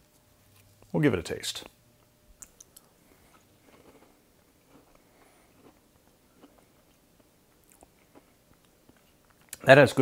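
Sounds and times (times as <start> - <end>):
faint crunchy chewing: 2.0 - 9.7.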